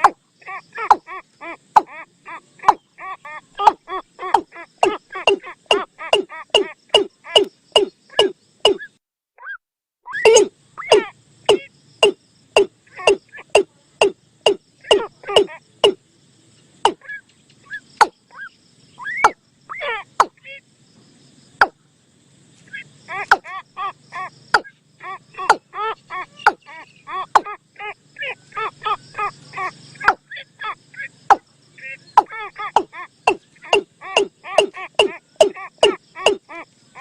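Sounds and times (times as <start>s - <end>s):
sharp bird calls: 0.0s - 20.8s, 22.6s - 37.0s.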